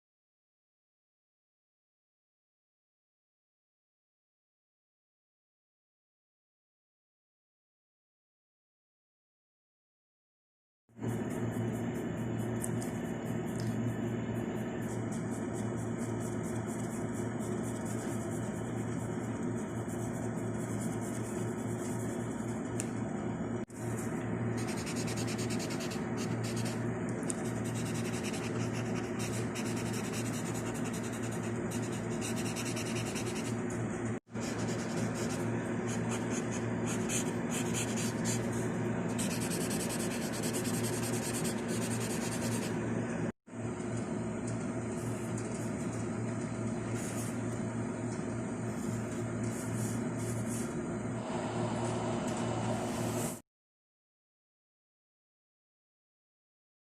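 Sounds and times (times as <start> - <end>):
background hum: 11.0 - 53.4
pencil scratching on paper: 11.2 - 22.8, 24.6 - 33.7, 34.4 - 42.8.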